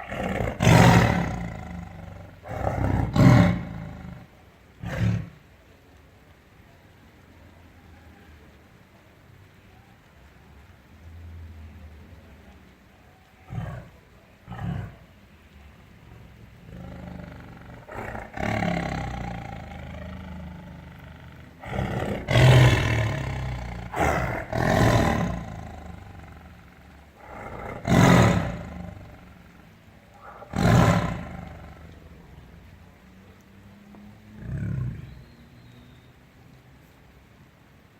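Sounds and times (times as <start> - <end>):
tiger roaring: 0.0 - 5.4, 13.4 - 15.2, 16.0 - 32.4, 34.3 - 35.2.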